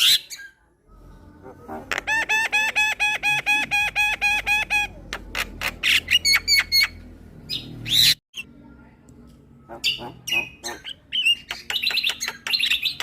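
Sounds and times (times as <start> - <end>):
bird chattering: 9.7 - 13.0
bird clicks and whistles: 11.4 - 13.0.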